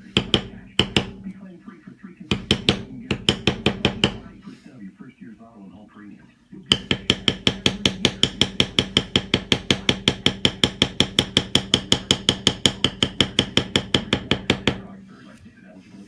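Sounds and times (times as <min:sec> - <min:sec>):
mallet tapping metal stamping tool: 0:00.0 - 0:01.4, 0:02.3 - 0:04.3, 0:06.7 - 0:14.9.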